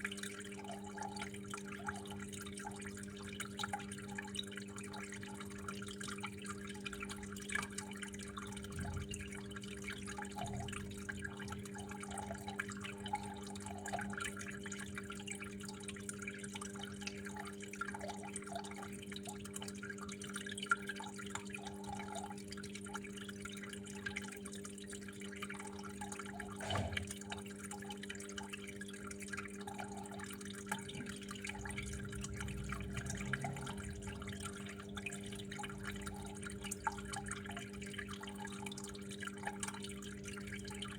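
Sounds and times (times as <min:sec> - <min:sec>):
water trickling and dripping: 0:00.0 - 0:40.9
steady low hum: 0:29.8 - 0:37.6.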